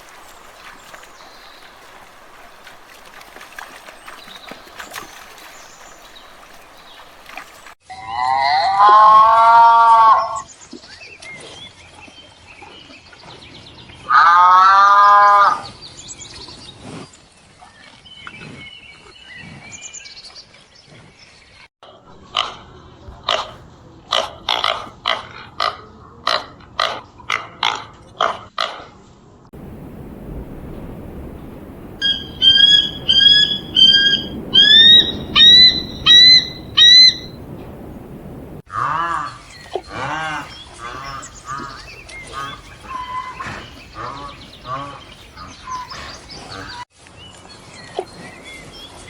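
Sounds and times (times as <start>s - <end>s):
long rising and falling animal calls: 29.6s - 38.6s
short sharp animal calls: 32.0s - 37.3s.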